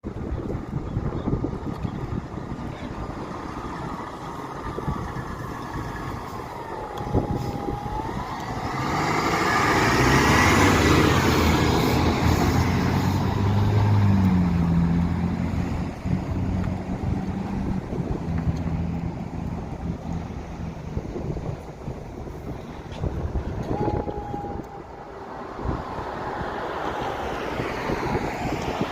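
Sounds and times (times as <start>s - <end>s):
engine rumble: 0.0s - 28.9s
fire engine siren wailing: 3.0s - 15.2s, 22.6s - 28.6s
long low horn: 23.2s - 25.9s.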